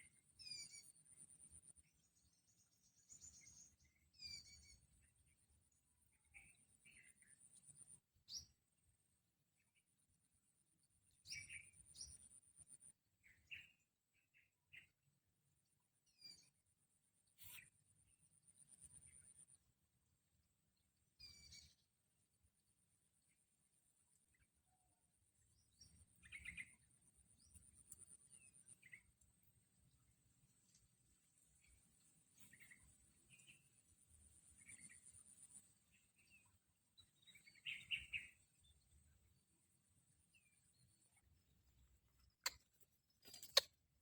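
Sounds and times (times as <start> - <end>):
faint bird chirps: 0.0 - 8.6, 11.0 - 15.1, 16.0 - 19.7, 20.7 - 22.0, 24.3 - 43.7
faint short bird chirps: 0.4 - 1.0, 3.1 - 4.8, 17.3 - 17.7.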